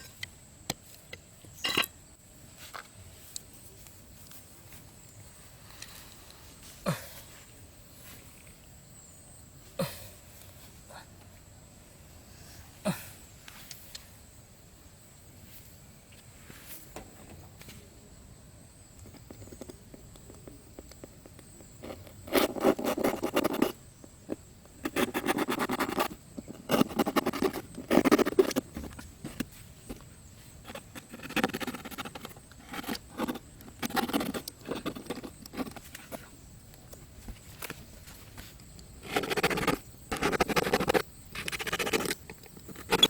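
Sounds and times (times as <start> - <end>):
scraping and rattling clicks: 39.0 - 43.0.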